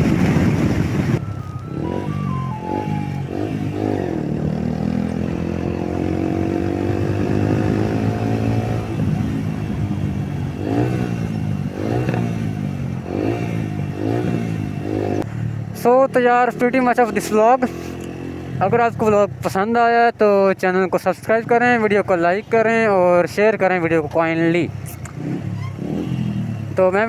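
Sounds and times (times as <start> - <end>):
motorcycle engine revving: 0.0 - 18.8, 24.7 - 26.9.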